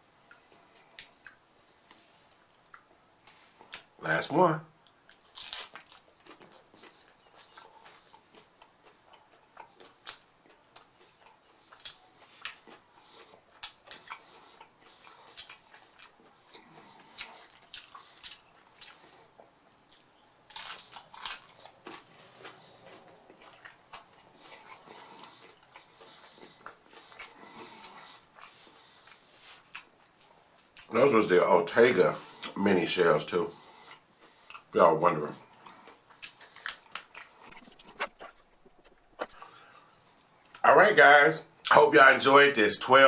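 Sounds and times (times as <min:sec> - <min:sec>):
person chewing crunchy taco shell: 0:04.8 - 0:30.9, 0:35.4 - 0:40.6.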